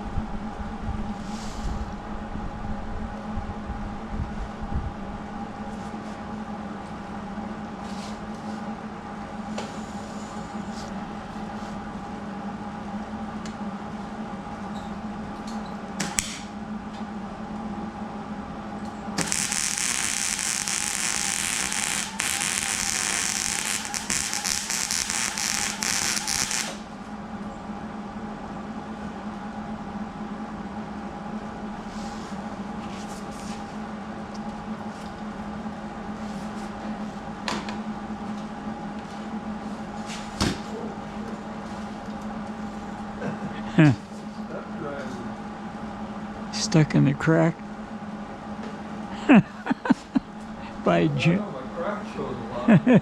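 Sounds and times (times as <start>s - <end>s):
steady low hum: 0.0s - 53.0s
welding arc crackling: 19.2s - 26.9s.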